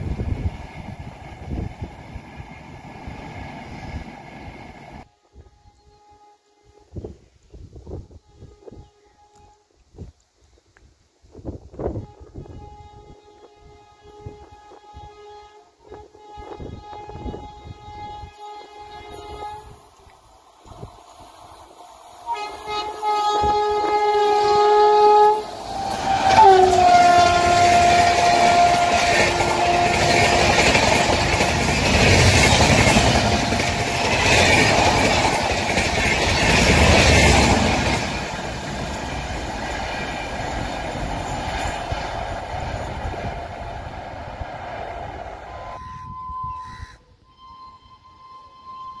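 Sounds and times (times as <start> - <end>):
train rushing past: 0.0 - 5.1, 16.0 - 46.9
locomotive horn blasts: 8.1 - 9.7, 11.9 - 19.8, 22.3 - 31.2, 45.5 - 49.0.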